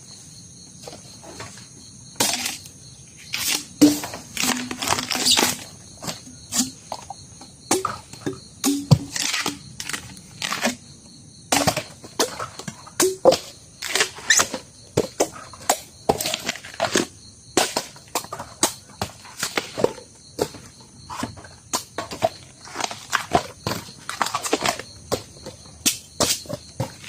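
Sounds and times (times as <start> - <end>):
bamboo splitting and crackling: 2.2 - 7.0, 7.7 - 10.8, 11.5 - 18.9.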